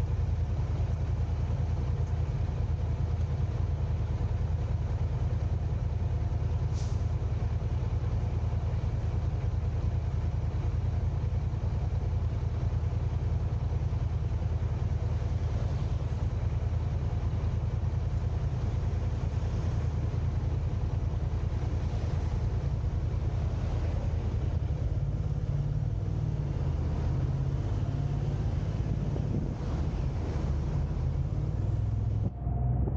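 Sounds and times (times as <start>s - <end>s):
car driving road and engine rumble: 0.0s - 32.9s.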